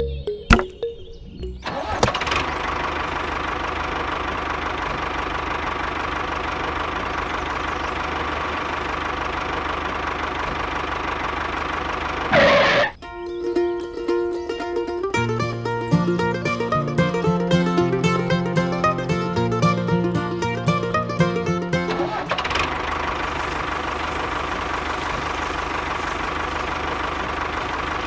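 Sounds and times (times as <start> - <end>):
small motor humming: 22.2 - 28.0.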